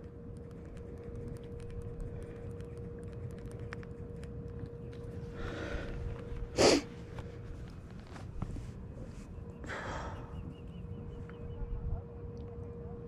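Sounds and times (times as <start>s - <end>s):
faint hum: 0.0s - 13.0s
person breathing: 5.3s - 6.9s, 9.6s - 10.4s
person snorting: 6.6s - 6.9s.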